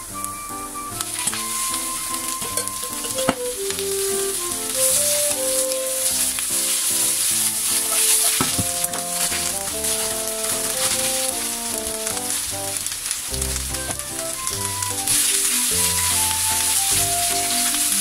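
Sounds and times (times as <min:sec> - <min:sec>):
soft background music: 0:00.0 - 0:18.0
wooden spatula stirring: 0:01.1 - 0:14.4
vegetables sizzling in a frying pan: 0:01.1 - 0:18.0.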